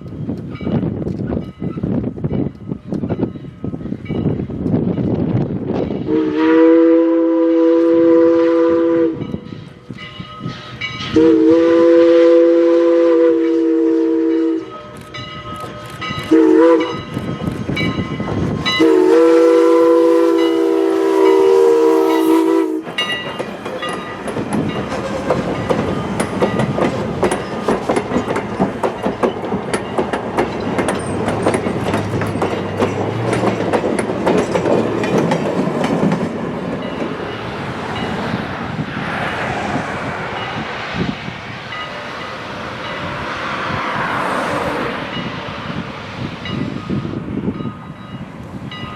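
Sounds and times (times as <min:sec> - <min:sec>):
train wheels clickety-clack: 0:00.0 - 0:06.4, 0:13.3 - 0:48.9
steam locomotive whistle: 0:06.1 - 0:09.7, 0:11.1 - 0:15.0, 0:16.2 - 0:17.3, 0:18.6 - 0:23.1.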